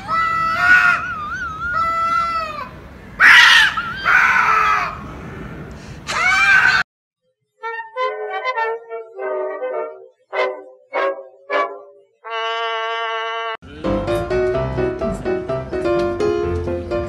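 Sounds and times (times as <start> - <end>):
cats yowling and screeching: 0.0 - 5.0, 6.1 - 6.8.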